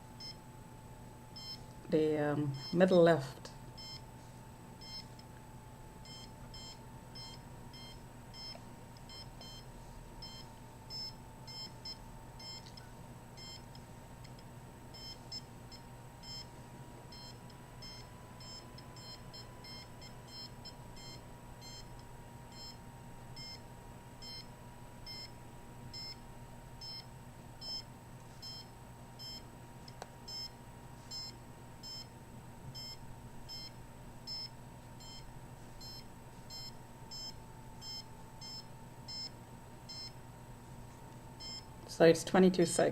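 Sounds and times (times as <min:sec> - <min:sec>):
high-pitched meter beeps: 0:01.4 - 0:01.6, 0:02.4 - 0:03.0, 0:03.8 - 0:04.1, 0:04.8 - 0:05.2, 0:06.0 - 0:12.8, 0:14.9 - 0:15.4, 0:16.2 - 0:16.5, 0:17.1 - 0:21.9, 0:25.1 - 0:26.2, 0:26.8 - 0:29.4, 0:30.3 - 0:30.5, 0:31.1 - 0:32.1, 0:32.8 - 0:40.2, 0:41.4 - 0:41.7.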